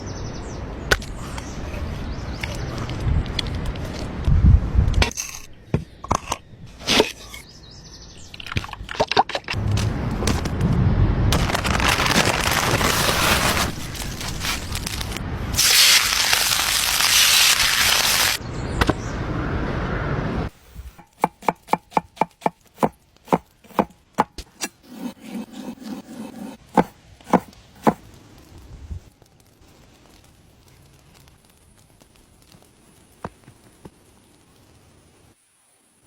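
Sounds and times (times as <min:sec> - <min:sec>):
crackling and hissing: 0:09.6 - 0:18.4, 0:26.5 - 0:36.0.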